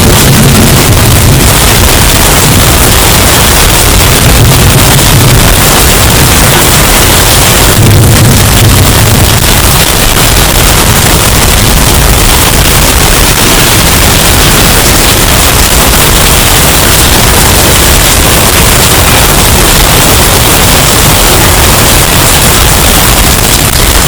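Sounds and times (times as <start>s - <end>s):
distorted hurricane wind: 0.0s - 24.0s.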